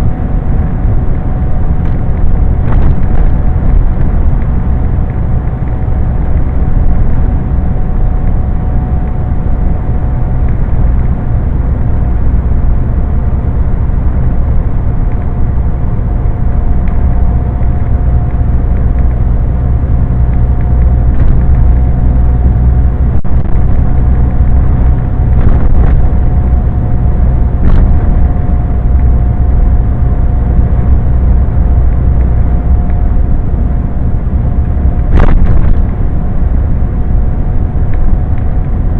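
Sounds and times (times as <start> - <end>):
thin steady whine: 0.0 - 38.9
truck engine and road drone: 0.0 - 38.9.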